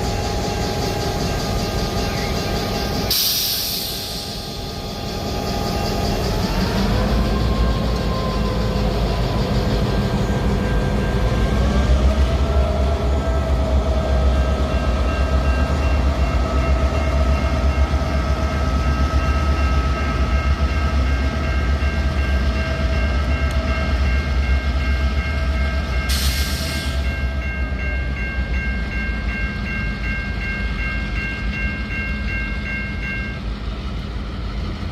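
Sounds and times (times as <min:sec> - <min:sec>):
diesel locomotive engines rumbling: 0:00.0 - 0:34.9
burst of hiss: 0:03.1 - 0:04.6.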